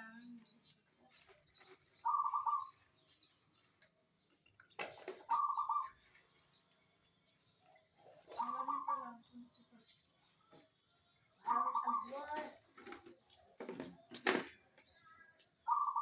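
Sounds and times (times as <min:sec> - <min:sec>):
dove pulsed cooing: 0:02.0 - 0:02.7.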